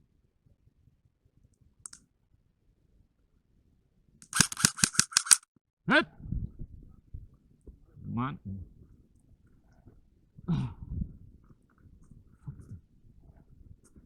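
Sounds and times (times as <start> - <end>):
faint click: 1.5 - 2.0.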